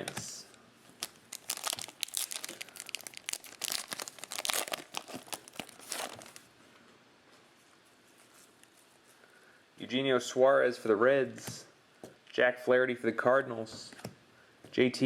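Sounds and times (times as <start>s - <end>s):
plastic wrapper crinkling and tearing: 1.0s - 6.5s.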